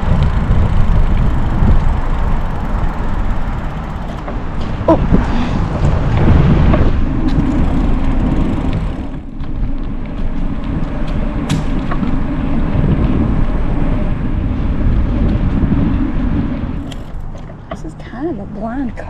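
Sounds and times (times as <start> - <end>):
faint ticks and rattles: 0.0 - 4.8, 7.2 - 10.2
wind rushing over microphone: 0.0 - 19.0.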